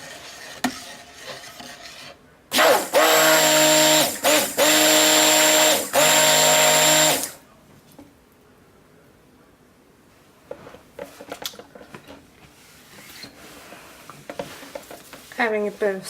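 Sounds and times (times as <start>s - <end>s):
stick blender running: 2.5s - 7.4s.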